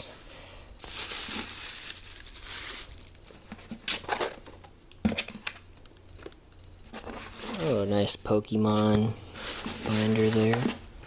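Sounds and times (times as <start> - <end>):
cardboard and paper rustling: 6.2 - 8.0, 8.6 - 10.8.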